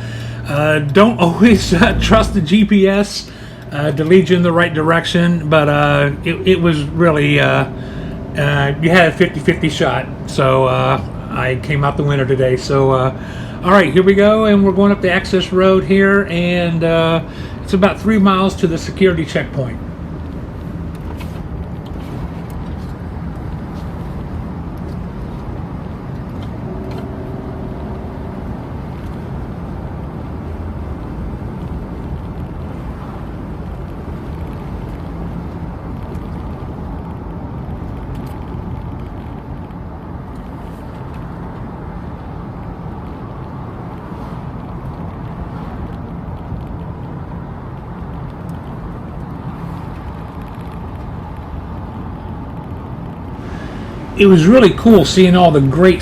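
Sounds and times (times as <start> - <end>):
car engine hum: 0.0 - 11.8, 25.2 - 31.0, 53.4 - 56.0
road noise: 0.0 - 56.0
short pitched sound: 0.9 - 3.6, 53.4 - 56.0.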